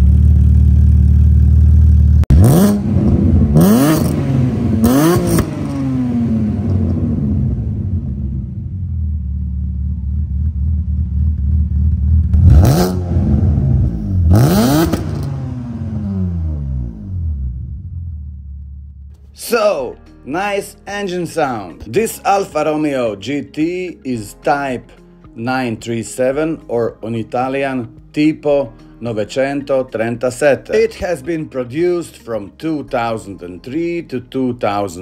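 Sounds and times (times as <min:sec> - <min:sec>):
car engine idling and revving: 0:00.0 - 0:19.2.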